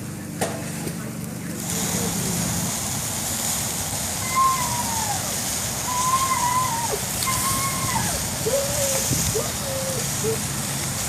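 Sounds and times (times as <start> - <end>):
meat sizzling over fire: 1.5 - 11.0
whistle-like sliding tones: 4.2 - 5.2, 5.8 - 10.4.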